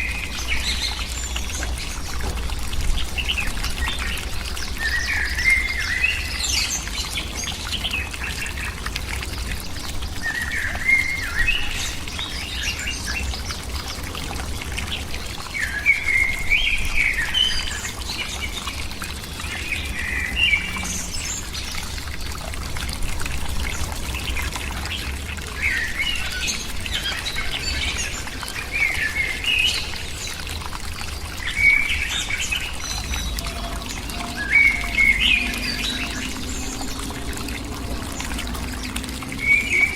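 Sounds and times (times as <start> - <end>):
birds chirping: 24.1 - 39.9.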